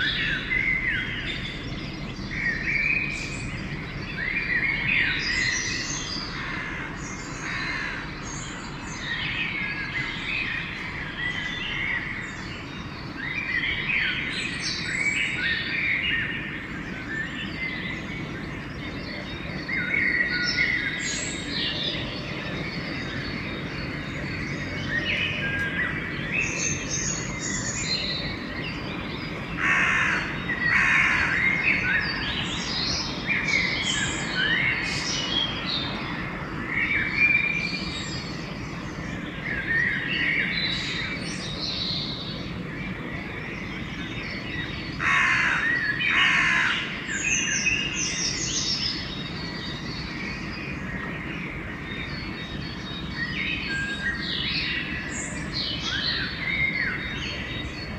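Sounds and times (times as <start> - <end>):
songbirds chirping and singing: 0.0 - 57.9
steady low background noise: 0.0 - 57.9
crows cawing: 6.4 - 8.1, 29.6 - 31.5, 45.0 - 46.9.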